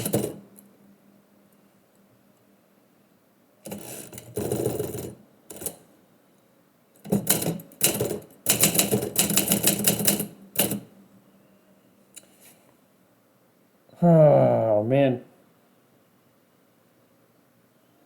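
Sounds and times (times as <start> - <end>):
typewriter keys striking: 0.0 - 0.5, 7.1 - 10.8.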